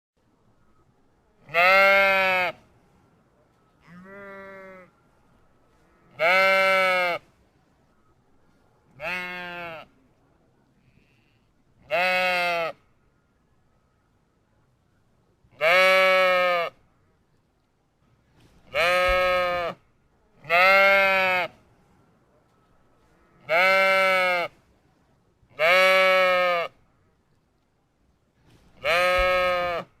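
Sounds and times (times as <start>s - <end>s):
sheep bleating: 1.4s - 2.6s, 3.8s - 4.9s, 6.0s - 7.2s, 9.0s - 9.9s, 11.0s - 12.8s, 15.6s - 16.7s, 18.7s - 19.8s, 20.4s - 21.5s, 23.2s - 24.5s, 25.6s - 26.7s, 28.8s - 29.9s.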